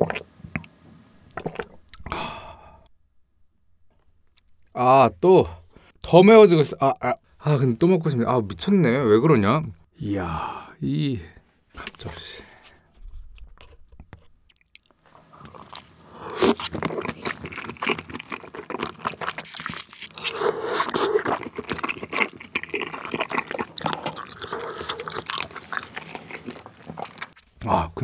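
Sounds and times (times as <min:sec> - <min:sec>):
chewing with wet mouth sounds: 0:13.3 - 0:27.6.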